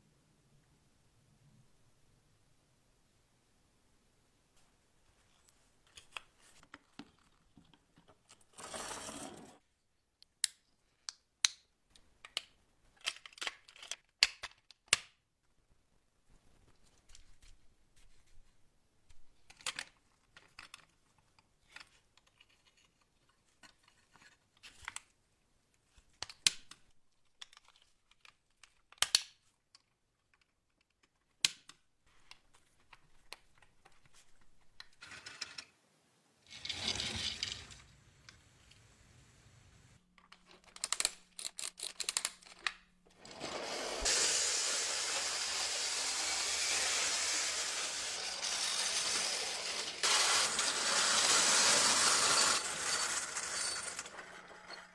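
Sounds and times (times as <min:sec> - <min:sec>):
small parts clicking and tapping: 0:10.2 - 0:15.2, 0:19.4 - 0:25.1, 0:25.9 - 0:35.7, 0:40.1 - 0:43.3.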